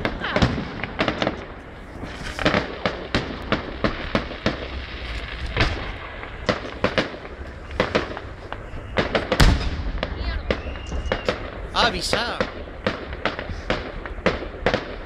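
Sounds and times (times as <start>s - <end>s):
fireworks bursting with sharp bangs: 0.0s - 15.0s
fireworks crackling: 0.0s - 15.0s.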